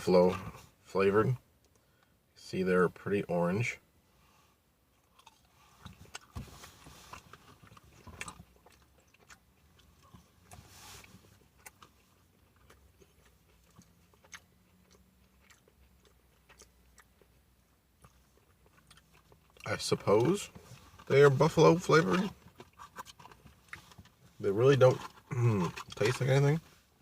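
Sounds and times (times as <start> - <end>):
person biting and chewing: 5.0 - 17.4, 18.0 - 19.7, 22.0 - 24.3, 25.0 - 26.2.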